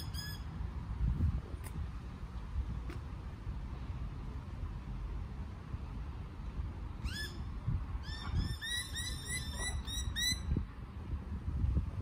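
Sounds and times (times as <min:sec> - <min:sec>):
steady low rumble: 0:00.4 - 0:08.6, 0:10.4 - 0:12.0
bird calling: 0:07.0 - 0:10.6.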